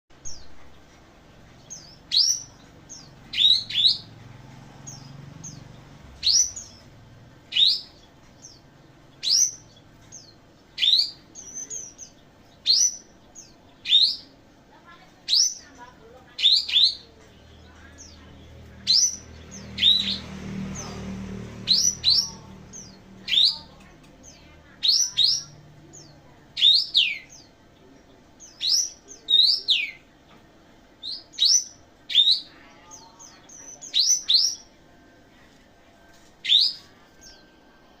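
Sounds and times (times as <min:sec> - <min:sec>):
songbird whistled chirps: 0:03.3 - 0:04.1, 0:07.5 - 0:08.0, 0:10.8 - 0:13.1, 0:18.8 - 0:20.2, 0:21.6 - 0:25.6, 0:36.4 - 0:37.6.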